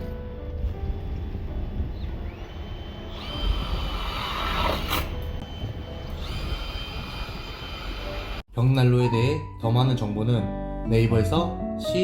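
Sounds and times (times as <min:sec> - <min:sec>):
power drill whining: 0:02.0 - 0:08.4.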